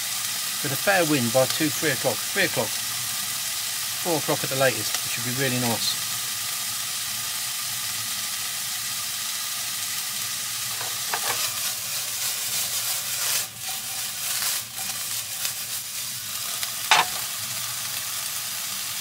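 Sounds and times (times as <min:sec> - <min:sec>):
chicken sizzling in a wok: 0:00.0 - 0:19.0
wok being shaken: 0:10.7 - 0:16.0, 0:16.9 - 0:17.3.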